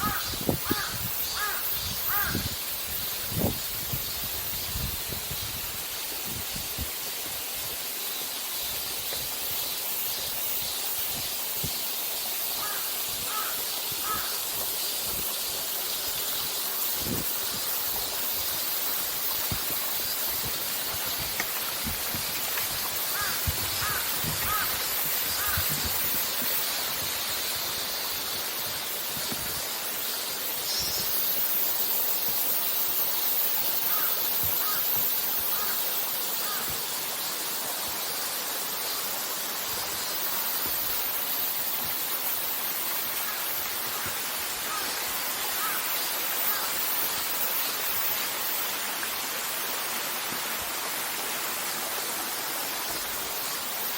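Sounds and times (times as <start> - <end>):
crow cawing: 0.0 - 2.4, 12.6 - 14.4, 23.1 - 25.8, 33.9 - 35.8, 36.4 - 36.7, 43.3 - 45.0, 45.6 - 45.9
wind buffeting microphone: 0.0 - 6.9, 19.5 - 27.2.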